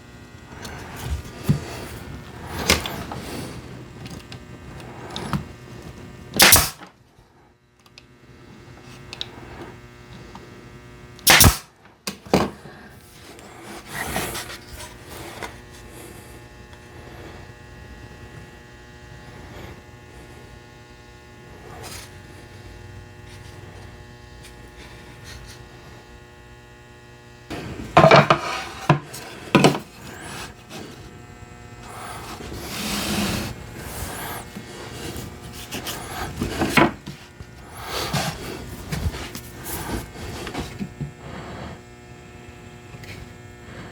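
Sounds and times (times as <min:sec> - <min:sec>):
steady electrical hum: 0:00.0 - 0:43.9
pneumatic nail gun shot: 0:06.4 - 0:06.9, 0:11.2 - 0:11.7
wooden knocks and scraping: 0:27.5 - 0:31.0, 0:34.6 - 0:37.2.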